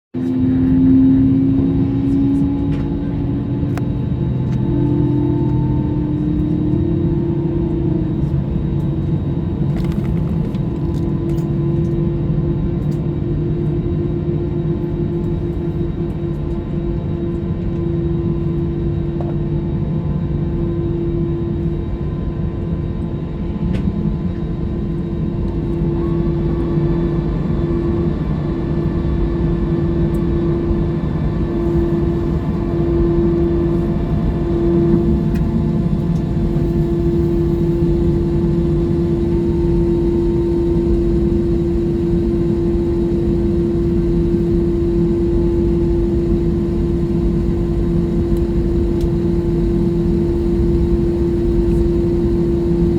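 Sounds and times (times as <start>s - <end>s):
mid-pitched hum: 0.1s - 52.9s
jet cabin engine rumble: 0.2s - 52.9s.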